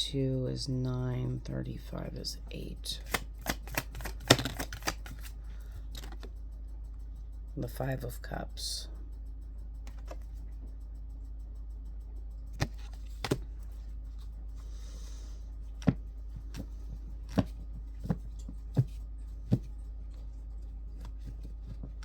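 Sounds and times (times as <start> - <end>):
low hum: 0.0 - 22.0
cards tapped on a table: 3.1 - 5.3.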